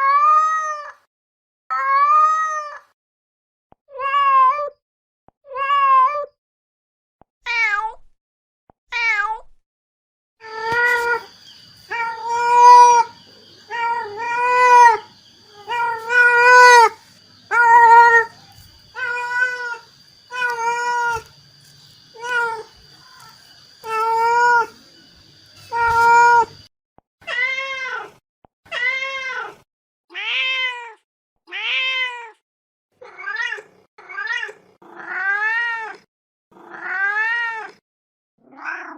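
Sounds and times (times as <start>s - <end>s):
cat meowing: 1.7s - 2.9s, 5.5s - 6.4s, 10.4s - 21.3s, 22.1s - 24.8s, 25.6s - 32.4s, 33.0s - 36.0s, 36.6s - 37.8s, 38.4s - 38.9s.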